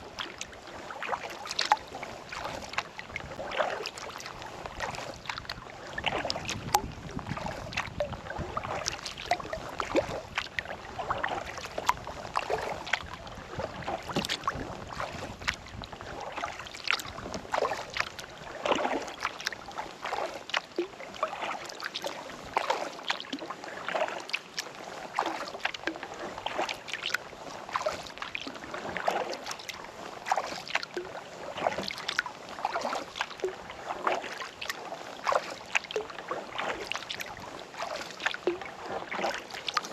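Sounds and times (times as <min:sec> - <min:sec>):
paddle strokes in water: 0:00.0 - 0:39.9
small water splashes: 0:00.0 - 0:39.9.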